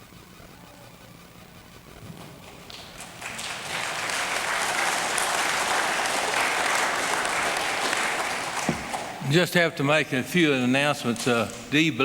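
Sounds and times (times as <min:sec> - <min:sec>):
crowd applauding: 0:01.9 - 0:09.6.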